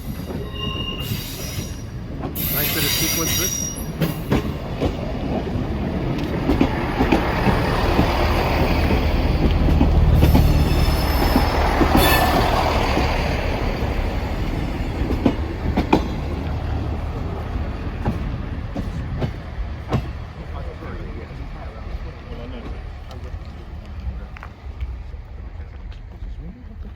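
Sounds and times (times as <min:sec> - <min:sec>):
wheel squeal: 0:00.0 - 0:04.2
train passing: 0:00.0 - 0:26.9
wheels clicking on rail joints: 0:00.0 - 0:26.9.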